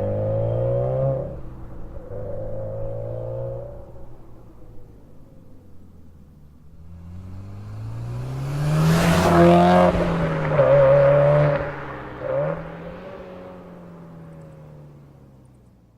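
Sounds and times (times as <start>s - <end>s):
car exhaust accelerating past: 6.6s - 15.0s.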